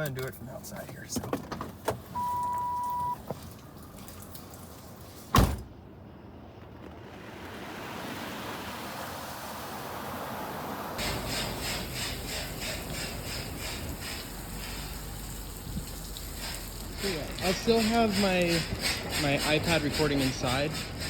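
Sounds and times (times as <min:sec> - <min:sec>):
loud thump: 0:05.4 - 0:05.7
high-pressure water spray hissing: 0:08.9 - 0:21.0.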